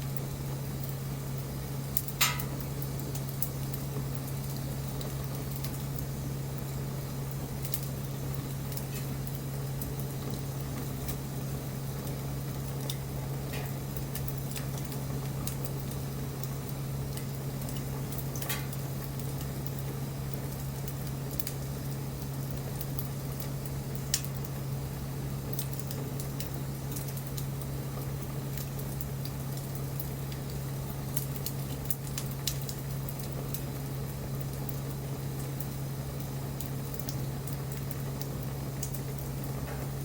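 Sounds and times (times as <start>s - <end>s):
wood fire crackling and popping: 0.0s - 40.0s.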